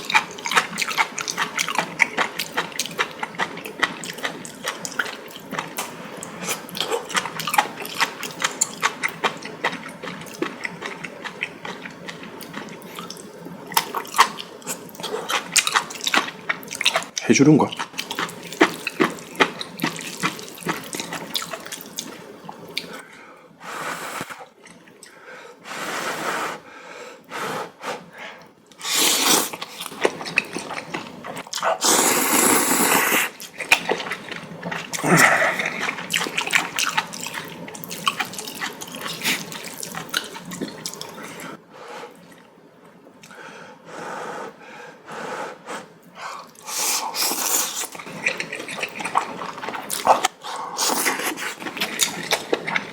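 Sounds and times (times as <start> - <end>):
person chewing: 0.0 - 23.0, 28.7 - 41.6, 46.4 - 52.9
person slurping noodles: 28.8 - 41.5, 46.6 - 52.9.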